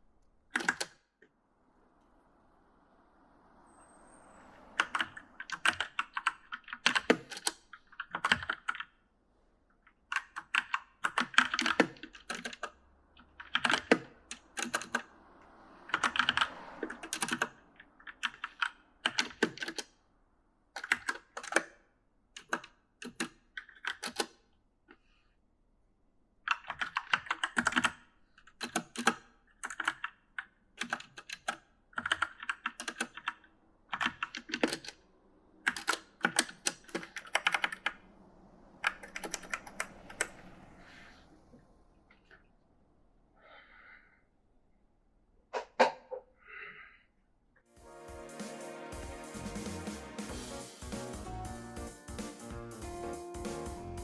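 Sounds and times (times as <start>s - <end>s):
mechanical keyboard typing: 0.6s - 0.9s, 4.8s - 8.9s, 10.1s - 12.8s, 13.4s - 15.1s, 15.9s - 16.5s, 17.1s - 17.5s, 18.1s - 19.9s, 20.8s - 21.7s, 22.4s - 24.3s, 26.5s - 30.1s, 30.8s - 35.0s, 35.6s - 38.0s, 38.8s - 40.3s.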